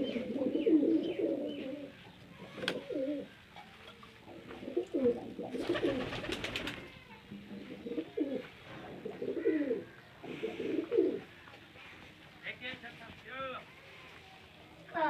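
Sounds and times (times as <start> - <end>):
pigeons cooing: 0.0 - 11.3.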